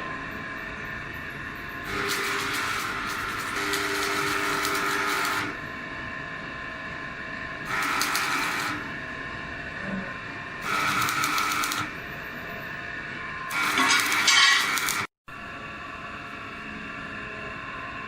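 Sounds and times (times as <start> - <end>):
machine running: 0.0 - 5.8, 7.6 - 15.1
machine rasping bursts: 1.9 - 5.5, 7.7 - 8.9, 10.6 - 11.9, 13.5 - 15.1.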